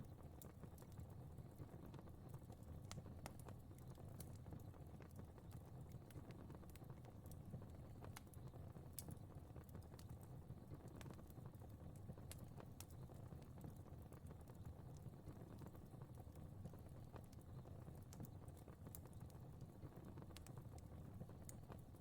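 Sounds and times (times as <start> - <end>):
fire crackling faintly: 0.0 - 22.0.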